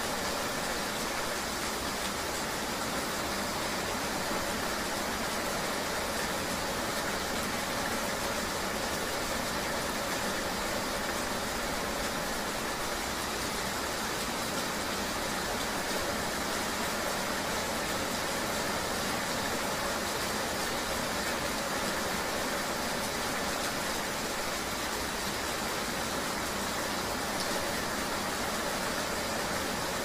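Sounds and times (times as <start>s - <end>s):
rain and road hiss: 0.0s - 30.0s.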